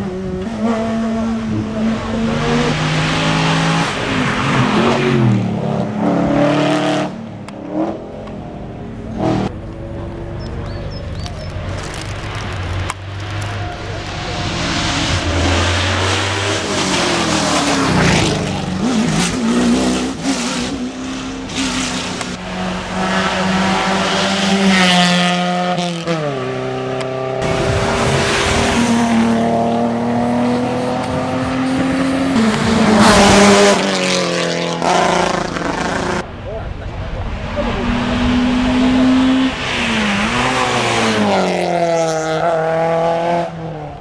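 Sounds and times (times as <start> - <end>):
race car engine revving: 0.0 - 44.0.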